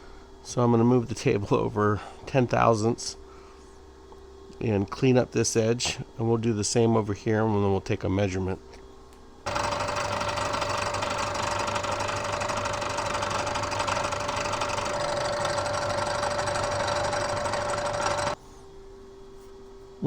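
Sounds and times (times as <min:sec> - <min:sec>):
milling machine cutting metal: 0:09.5 - 0:18.4.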